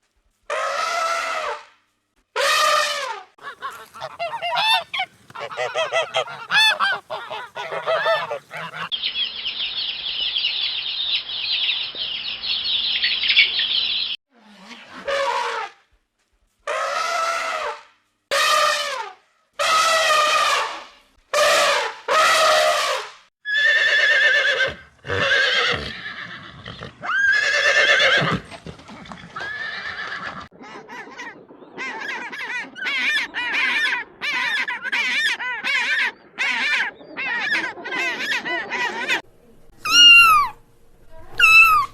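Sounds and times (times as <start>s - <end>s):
loud animal calls: 2.6s - 8.9s, 29.4s - 41.9s
animal chattering: 3.4s - 8.9s, 39.8s - 41.9s.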